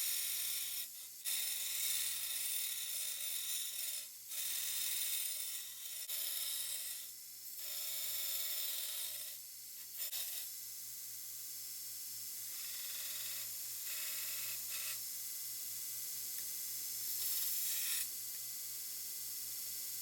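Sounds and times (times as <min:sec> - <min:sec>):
abrasive tool grinding steel: 0:00.0 - 0:10.5, 0:12.4 - 0:15.0, 0:17.0 - 0:18.1.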